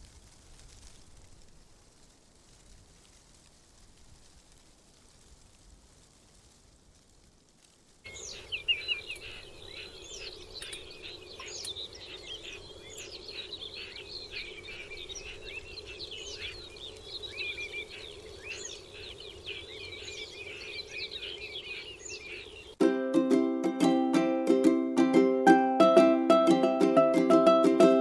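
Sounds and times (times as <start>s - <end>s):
low background noise: 0.0s - 28.0s
songbirds chirping and singing: 8.1s - 22.8s.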